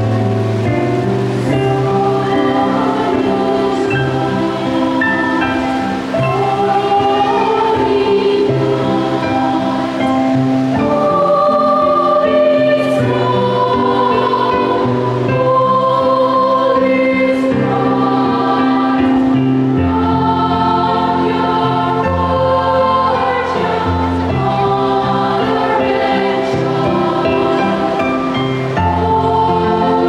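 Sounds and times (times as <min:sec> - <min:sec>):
children's choir singing: 0:00.0 - 0:30.0.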